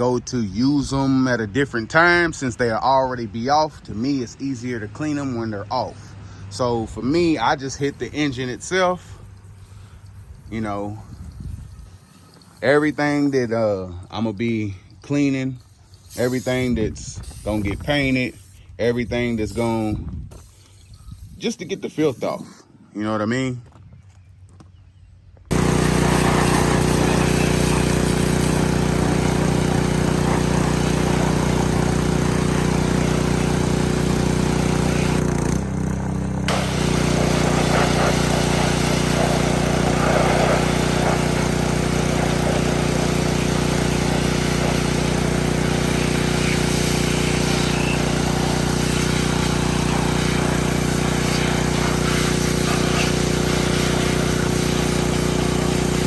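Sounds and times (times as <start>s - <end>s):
pressure washer motor humming: 7.2s - 22.4s, 25.5s - 56.0s
water spray hissing: 7.6s - 22.6s, 25.5s - 35.5s, 36.5s - 56.0s.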